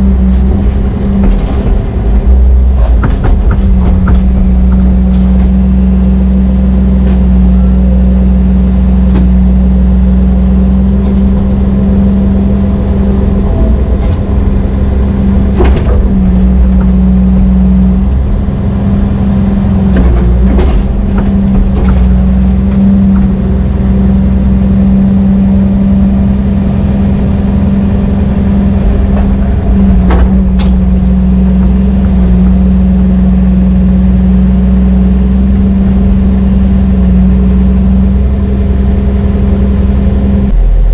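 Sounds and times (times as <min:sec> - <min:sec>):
diesel engine running: 0:00.0 - 0:40.9
sharp metallic knocks: 0:00.2 - 0:06.4.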